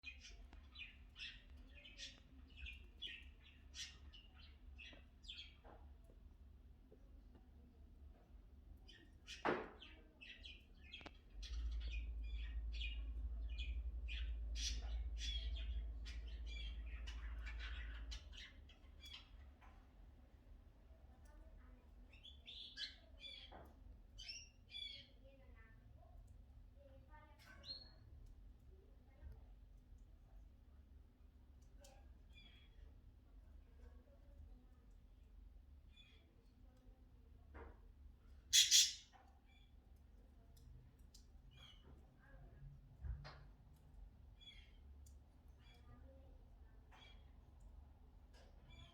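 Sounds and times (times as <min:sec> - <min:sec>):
cockatiel chirping: 0:38.5 - 0:39.0.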